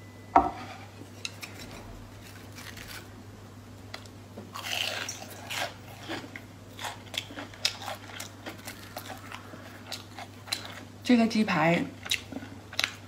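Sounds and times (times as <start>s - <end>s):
crunchy biting and chewing: 1.3s - 3.1s, 4.5s - 11.0s.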